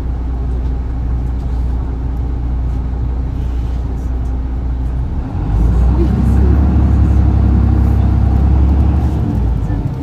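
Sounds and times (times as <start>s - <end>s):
bus diesel engine droning: 0.0s - 10.0s.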